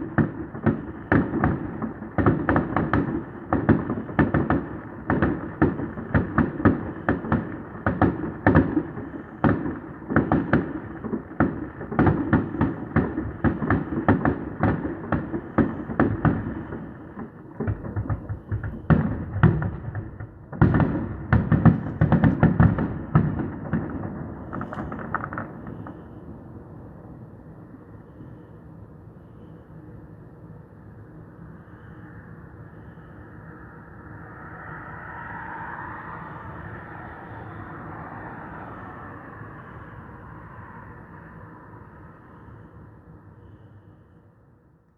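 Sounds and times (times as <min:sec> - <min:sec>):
fireworks bangs: 0:00.0 - 0:26.4
fireworks rumble: 0:00.0 - 0:28.4.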